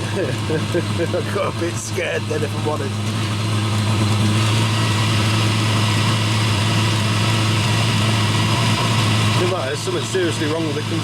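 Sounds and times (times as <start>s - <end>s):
diesel heater humming and hissing: 0.0s - 11.0s.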